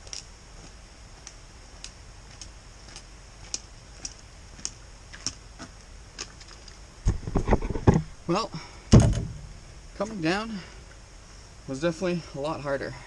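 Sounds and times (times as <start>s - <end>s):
faint steady background noise: 0.0s - 13.0s
light sharp ticks: 1.2s - 5.4s.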